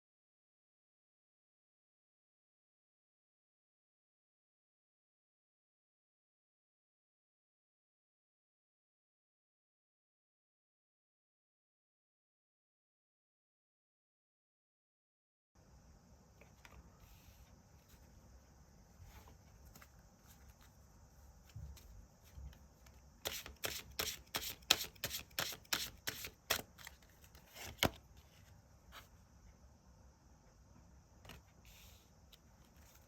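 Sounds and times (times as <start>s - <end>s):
faint hiss: 15.6s - 33.0s
cards being shuffled: 23.2s - 28.0s.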